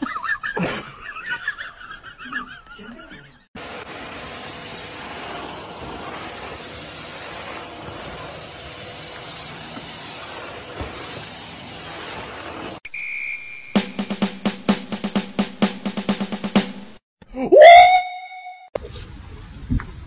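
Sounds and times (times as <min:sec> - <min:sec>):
vacuum cleaner running: 0:03.6 - 0:12.8.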